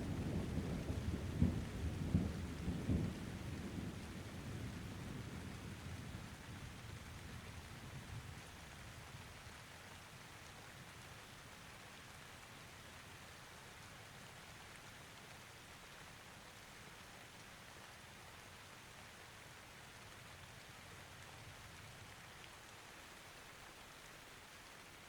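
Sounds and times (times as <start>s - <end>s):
thunder rumbling: 0.0s - 6.2s
light rain: 0.0s - 25.0s.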